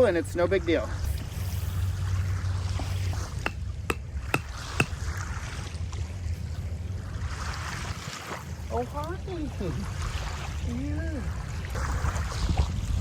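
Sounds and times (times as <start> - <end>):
wind rumbling on microphone: 11.3 - 13.0.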